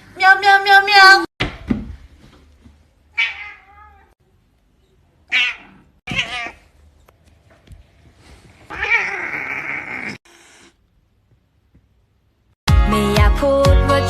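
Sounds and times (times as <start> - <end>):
cat meowing: 3.1 - 4.2, 5.2 - 6.7, 8.7 - 10.2.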